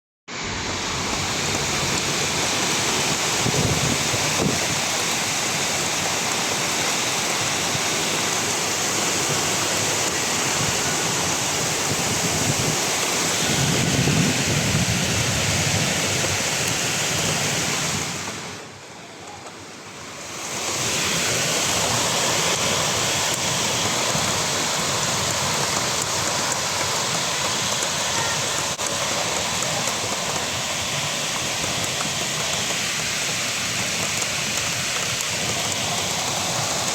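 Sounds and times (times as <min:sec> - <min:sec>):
heavy rain pouring: 0:00.3 - 0:36.9
low thunder rumble: 0:00.4 - 0:04.7, 0:11.6 - 0:16.5.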